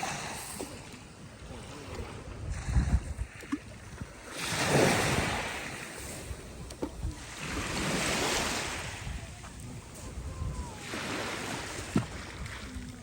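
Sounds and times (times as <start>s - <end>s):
waves breaking on shore: 0.0s - 13.0s
wind gusts on microphone: 0.0s - 13.0s.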